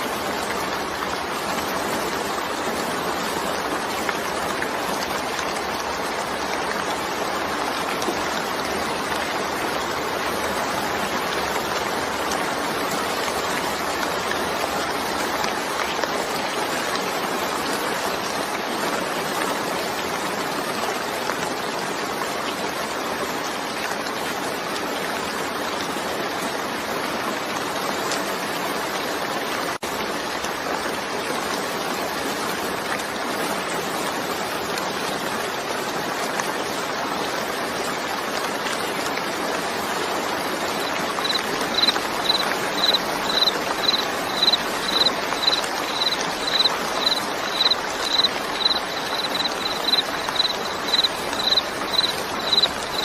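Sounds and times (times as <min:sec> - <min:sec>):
steady rain falling: 0:00.0 - 0:53.0
high repeating chirp: 0:41.2 - 0:53.0.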